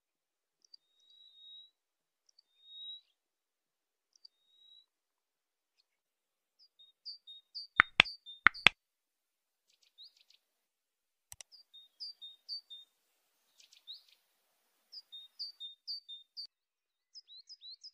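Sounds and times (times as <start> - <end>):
bird chirping: 7.6 - 8.7
sharp clicks: 7.8 - 8.7.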